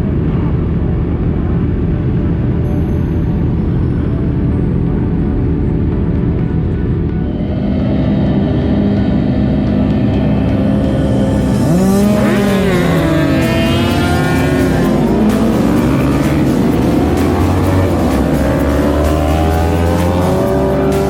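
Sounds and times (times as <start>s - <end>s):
background music: 2.2s - 21.0s
motorcycle engines revving past: 5.6s - 21.0s.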